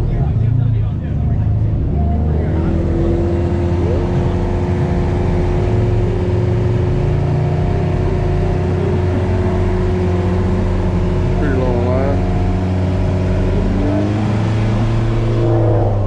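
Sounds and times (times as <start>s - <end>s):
loud deep bass: 0.0s - 16.0s
steady higher hum: 13.4s - 16.0s.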